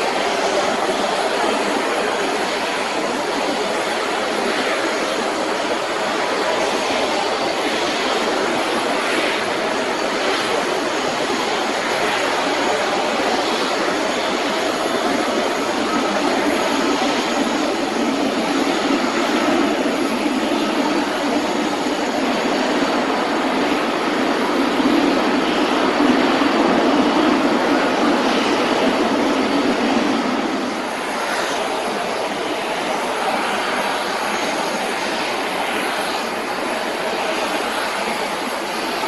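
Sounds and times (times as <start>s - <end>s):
jet engines running: 0.0s - 39.0s.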